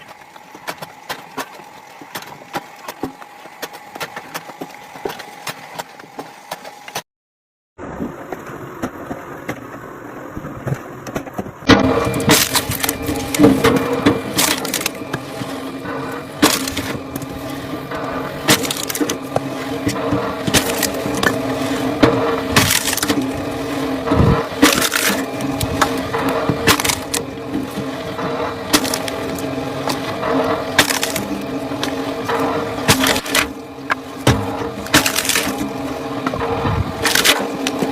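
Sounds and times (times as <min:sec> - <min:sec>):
wood cracking and splintering: 0:10.6 - 0:37.9
machine humming: 0:11.6 - 0:37.9.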